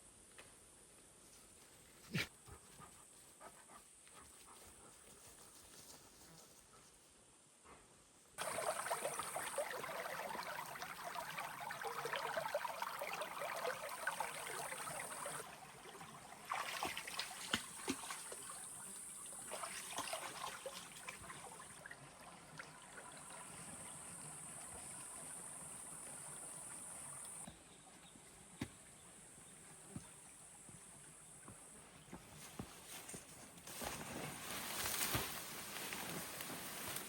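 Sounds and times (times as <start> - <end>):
water trickling and splashing: 8.4 - 27.5, 32.4 - 37.0.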